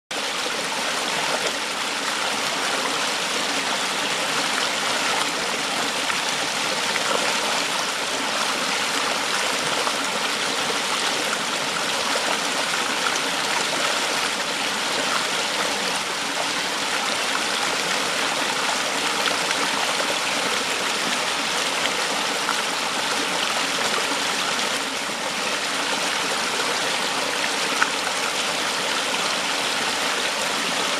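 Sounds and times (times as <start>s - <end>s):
water rushing over rocks: 0.1s - 30.9s.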